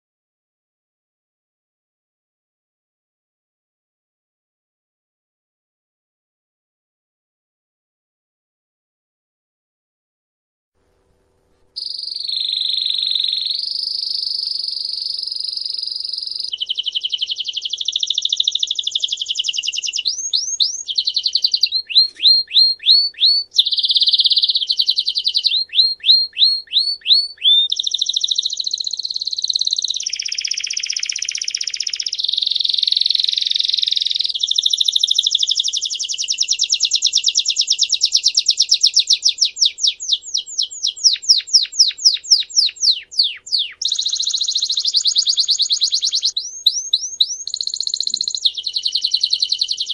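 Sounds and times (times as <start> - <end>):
songbird singing trills: 11.8 - 49.9.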